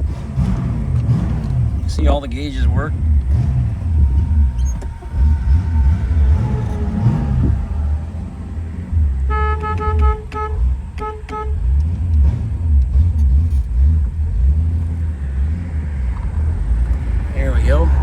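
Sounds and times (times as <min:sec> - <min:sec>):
car engine running: 0:00.0 - 0:18.0
road rumble: 0:00.0 - 0:18.0
car horn toots: 0:01.9 - 0:12.4.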